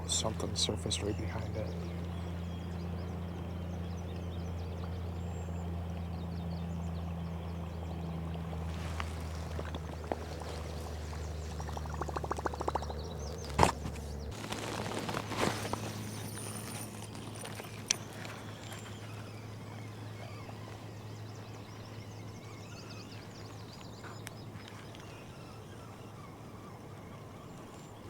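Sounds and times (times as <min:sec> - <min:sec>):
fishing reel humming: 0:15.4 - 0:23.7.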